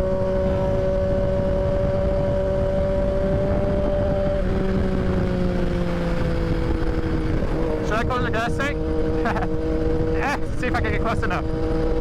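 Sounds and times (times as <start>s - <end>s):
motorcycle engine cruising: 0.0s - 12.0s
wind rumble on microphone: 0.0s - 12.0s.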